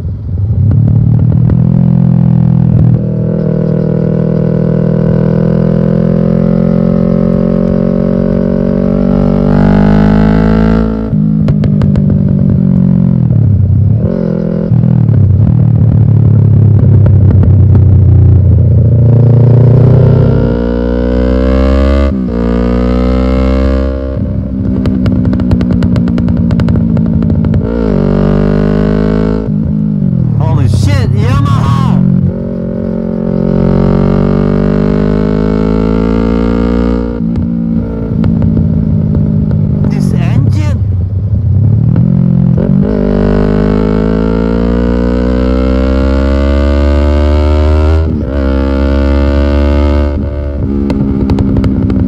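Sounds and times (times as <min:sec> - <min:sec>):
motorcycle engine accelerating: 0:00.0 - 0:52.0
exhaust crackles and pops: 0:00.7 - 0:01.8, 0:11.4 - 0:14.0, 0:15.0 - 0:19.0, 0:24.5 - 0:28.1, 0:36.9 - 0:42.6, 0:50.2 - 0:52.0.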